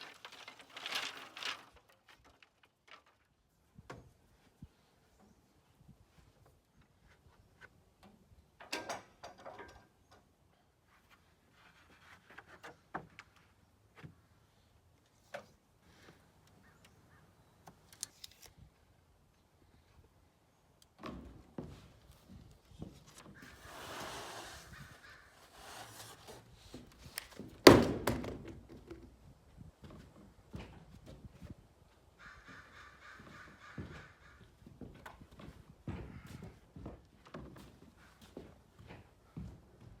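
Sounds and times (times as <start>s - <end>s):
faint scattered clicks and knocks: 8.0s - 10.4s
small knocks: 26.8s - 29.2s
loud thunk: 27.6s - 28.7s.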